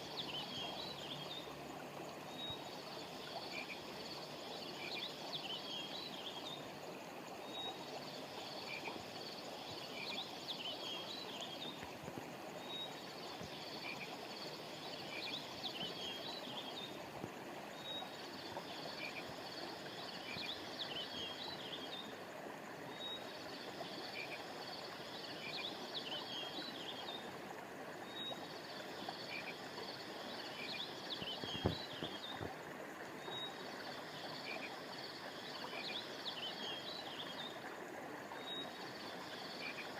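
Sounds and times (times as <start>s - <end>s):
stream flowing: 0.0s - 39.9s
short knock: 31.5s - 32.2s.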